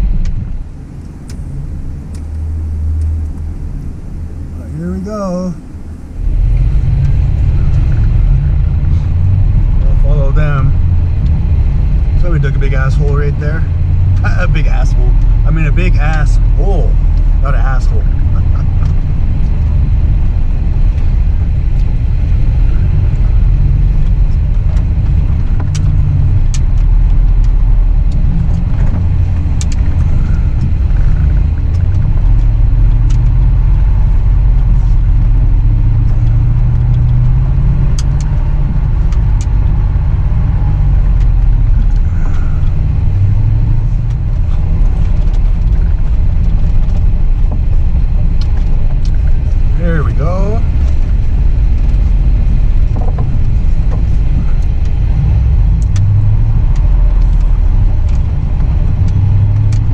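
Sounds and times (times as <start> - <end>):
truck engine working under load: 0.0 - 59.9
sharp clicks and knocks: 50.7 - 59.9.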